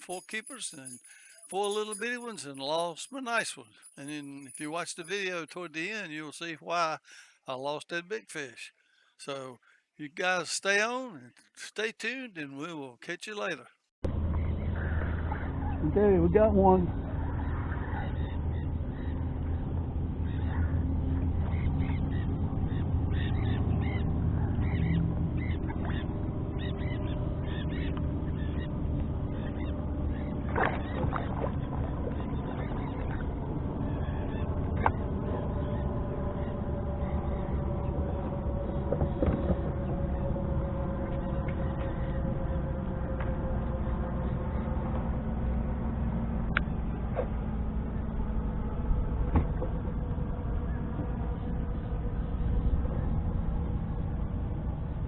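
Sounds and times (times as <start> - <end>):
bird chirps: 0.0 - 6.2, 16.9 - 42.6
steady low rumble: 14.0 - 55.0.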